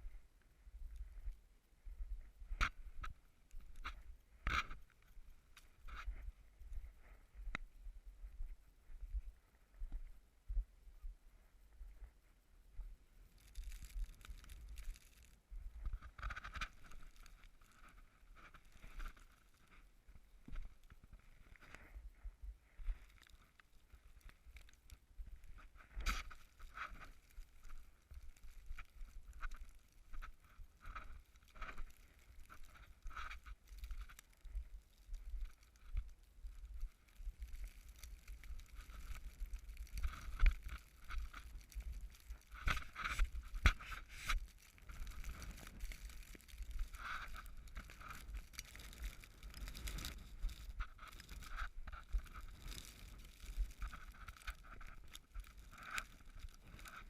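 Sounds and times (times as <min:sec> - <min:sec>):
wind rumble on microphone: 0:23.8 - 0:57.0.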